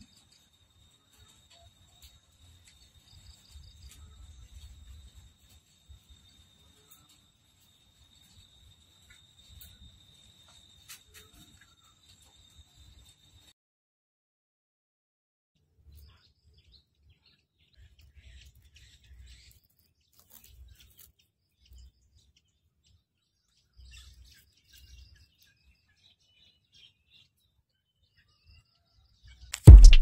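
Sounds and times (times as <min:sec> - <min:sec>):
faint bird chirps: 0:15.8 - 0:30.0.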